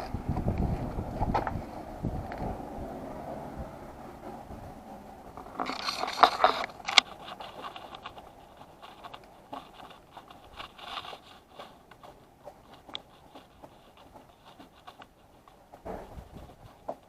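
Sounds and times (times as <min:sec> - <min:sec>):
metal tools scraping and clinking: 0:05.4 - 0:11.8.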